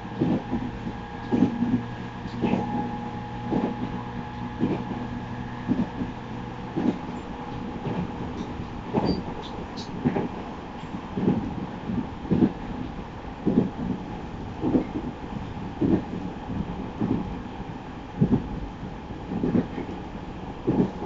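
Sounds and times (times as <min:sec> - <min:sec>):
train motor hum and whine: 0:00.0 - 0:12.2.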